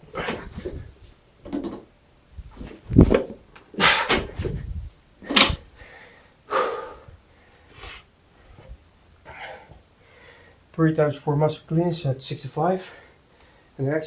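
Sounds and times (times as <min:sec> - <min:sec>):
heavy thump: 0:04.0 - 0:05.6
person breathing hard: 0:05.7 - 0:10.6.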